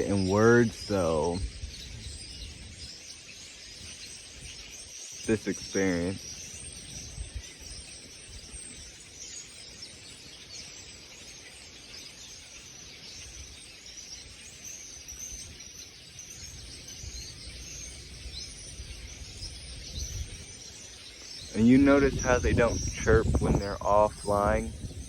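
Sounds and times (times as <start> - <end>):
small birds chirping: 0.0 - 25.0
wind rumble: 16.6 - 20.7, 21.4 - 25.0.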